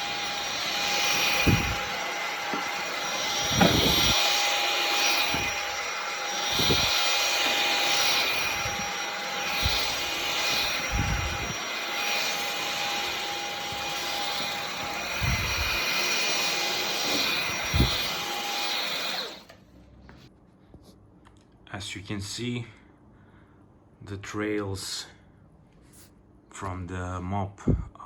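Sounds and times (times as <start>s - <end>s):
low bumps: 0.0s - 18.2s
vacuum motor whine: 0.0s - 19.6s.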